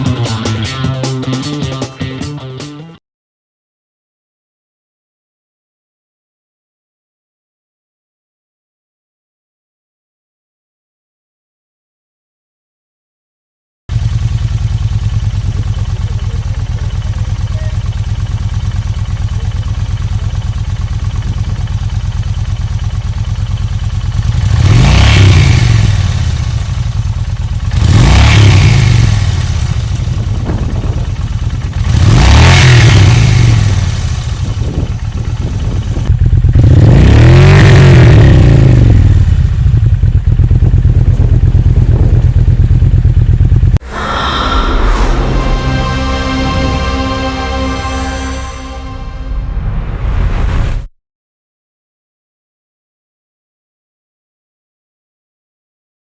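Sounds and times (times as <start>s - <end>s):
motorcycle engine idling and revving: 0.0s - 2.4s, 13.9s - 43.8s.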